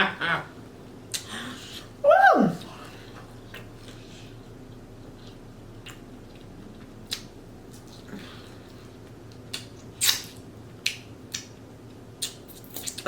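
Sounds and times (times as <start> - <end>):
wet mouth clicks while chewing: 5.2 - 8.2, 9.3 - 11.6, 12.2 - 13.0.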